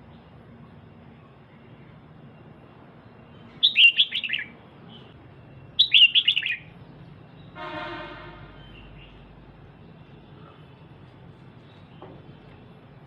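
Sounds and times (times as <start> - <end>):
bird chattering call: 3.6 - 4.5, 5.8 - 6.7.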